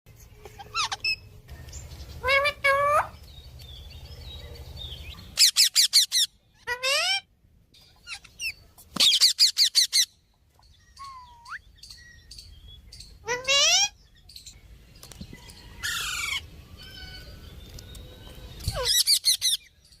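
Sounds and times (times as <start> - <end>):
parrot calling and whistling: 0.6 - 1.3, 5.4 - 7.3, 10.9 - 12.0, 13.0 - 14.0, 18.6 - 19.7.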